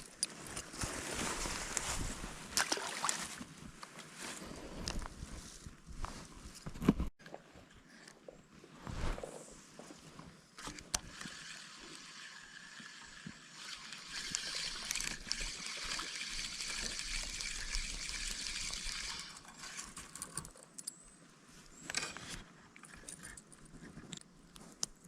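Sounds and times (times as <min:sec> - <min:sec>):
stream water trickling: 0:11.1 - 0:20.0.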